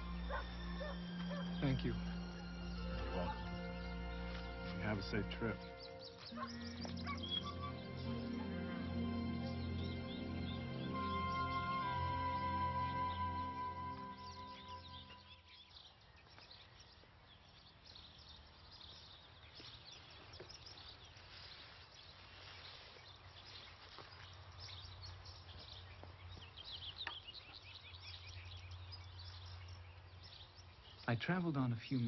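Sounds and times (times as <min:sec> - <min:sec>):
soft music: 0:00.0 - 0:15.5
faint outdoor background: 0:00.0 - 0:32.0
songbirds chirping and singing: 0:00.0 - 0:32.0.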